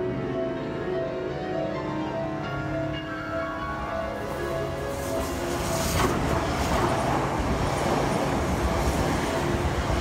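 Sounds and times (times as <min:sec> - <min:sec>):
electric train rumbling past: 0:02.5 - 0:10.0.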